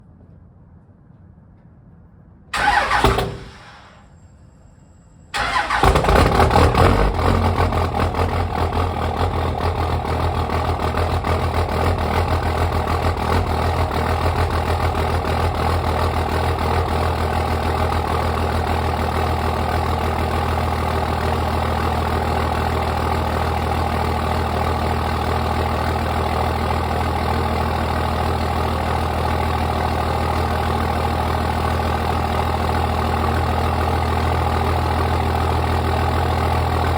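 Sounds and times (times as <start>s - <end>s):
diesel engine starting and idling: 2.5s - 36.9s.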